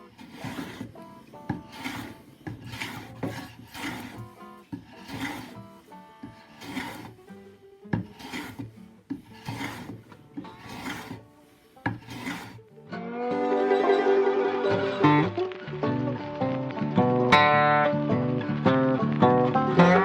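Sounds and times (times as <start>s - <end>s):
hand sanding wood: 0.0s - 12.6s.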